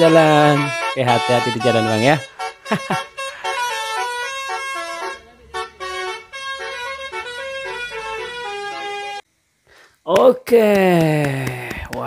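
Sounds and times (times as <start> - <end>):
musical truck horn playing a tune: 0.0 - 9.3.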